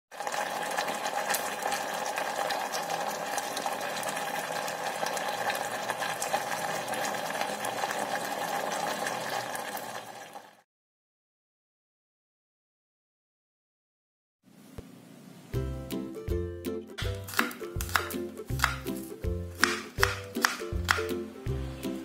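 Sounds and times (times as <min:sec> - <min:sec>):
gravy bubbling and sizzling: 0:00.1 - 0:10.6.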